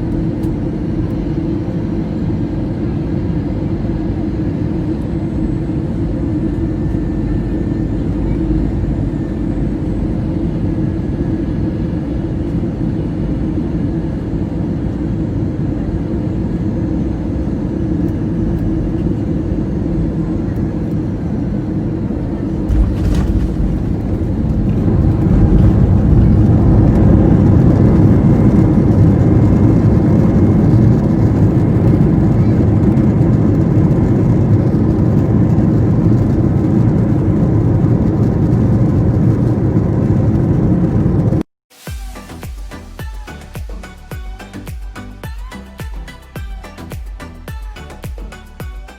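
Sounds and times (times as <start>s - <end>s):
aircraft engine and airflow rumble: 0.0s - 41.5s
sudden thump: 22.7s - 27.5s.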